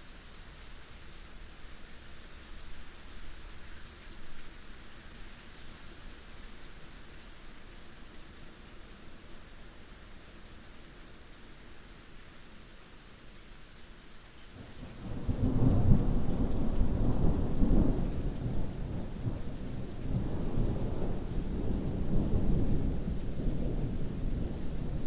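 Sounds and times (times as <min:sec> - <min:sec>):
heavy rain: 0:00.0 - 0:25.0
thunder rumbling: 0:14.8 - 0:25.0.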